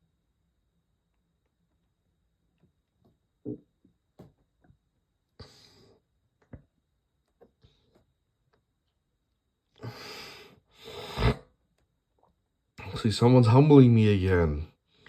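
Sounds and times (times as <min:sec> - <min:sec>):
person breathing out: 0:09.8 - 0:11.4.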